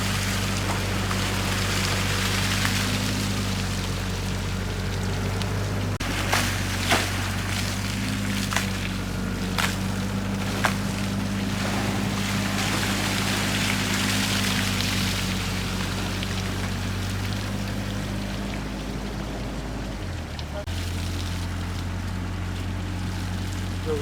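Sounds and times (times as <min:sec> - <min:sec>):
motor humming: 0:00.0 - 0:24.0
rushing hiss of water: 0:09.2 - 0:18.7.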